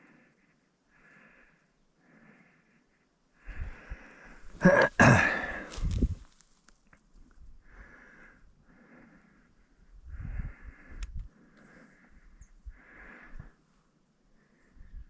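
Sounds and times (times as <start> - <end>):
person breathing hard: 0.0 - 6.2, 7.6 - 13.7.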